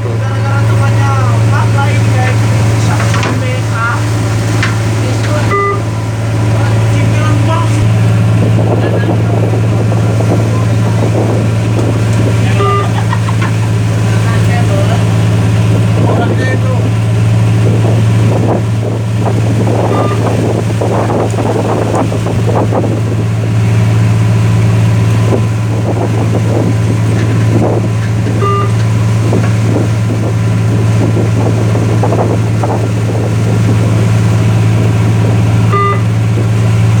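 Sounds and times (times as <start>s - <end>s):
boat engine droning: 0.0s - 37.0s
water rushing: 0.0s - 37.0s
wind: 0.0s - 37.0s
short high beep: 5.5s - 6.0s, 12.6s - 13.0s, 19.9s - 20.3s, 28.4s - 28.8s, 35.8s - 36.1s.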